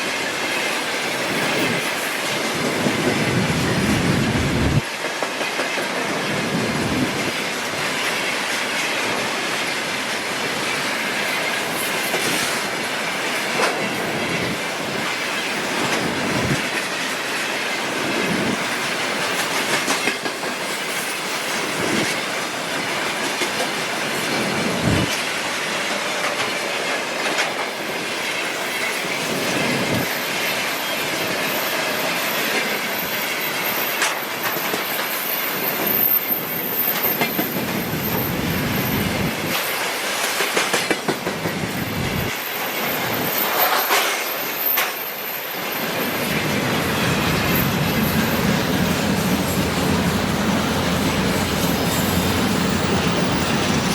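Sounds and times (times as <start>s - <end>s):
train wheels rumbling on rails: 0.0s - 53.9s
rail-joint clacks: 4.8s - 53.9s
high wheel squeal: 28.5s - 39.8s, 41.6s - 53.9s.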